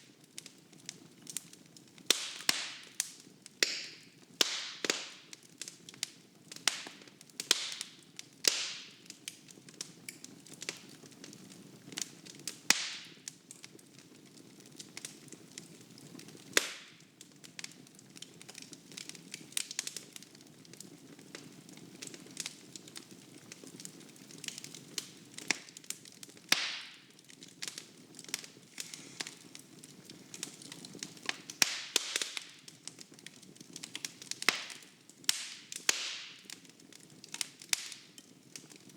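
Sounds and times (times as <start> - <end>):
wood fire crackling and popping: 0.0 - 38.9
soft hiss of flame: 28.3 - 32.6.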